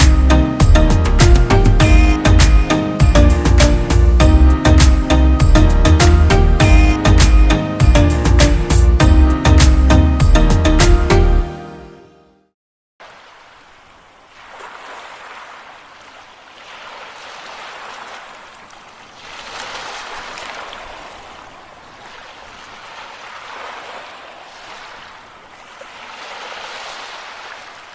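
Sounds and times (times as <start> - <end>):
small waves washing on sand: 13.0 - 27.9.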